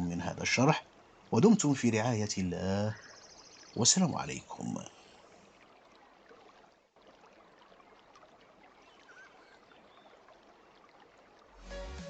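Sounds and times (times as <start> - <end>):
faint background hiss: 0.0 - 5.7.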